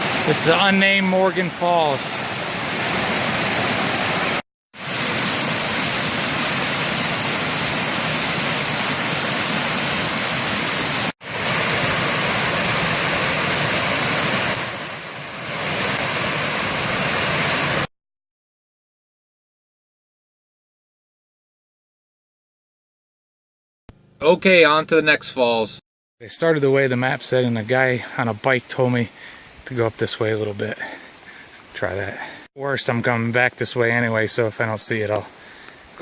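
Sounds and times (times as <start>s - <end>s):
waterfall roaring: 0.0s - 17.9s.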